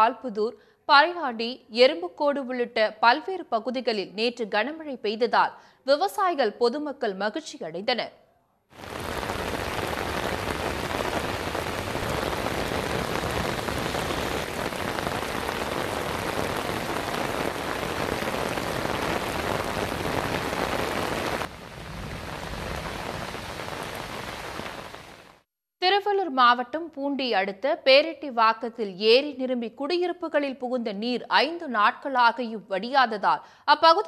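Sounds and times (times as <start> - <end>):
heavy rain on pavement: 8.8 - 25.4.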